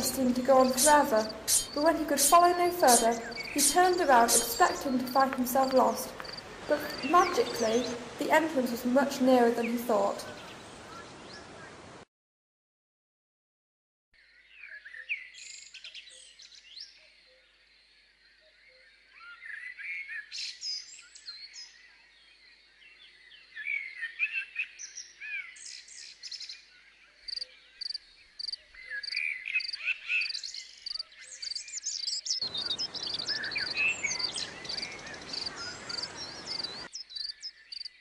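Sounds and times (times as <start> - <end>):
insect chirps: 0.0 - 8.2, 27.2 - 38.0
birds singing and chirping: 0.0 - 11.6, 18.7 - 38.0.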